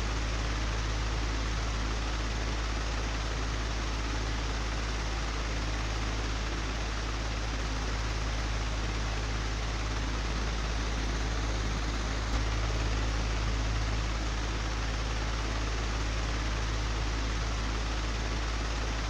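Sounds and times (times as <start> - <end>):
electric fan humming and whirring: 5.0 - 19.0.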